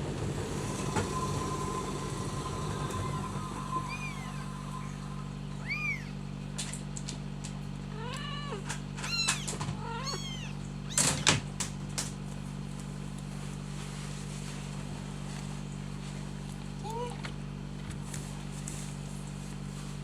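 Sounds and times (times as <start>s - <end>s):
low hum: 0.0s - 8.4s
kittens mewing: 5.6s - 6.2s, 7.9s - 11.4s.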